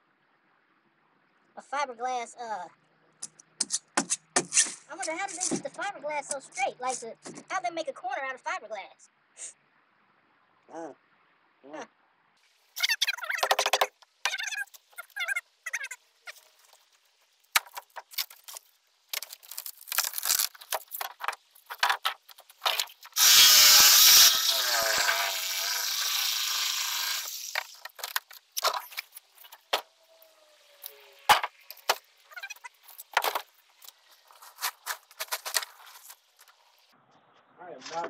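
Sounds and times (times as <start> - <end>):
power tool running: 23.2 - 27.6
scrapes and knocks of handling: 32.8 - 36.6.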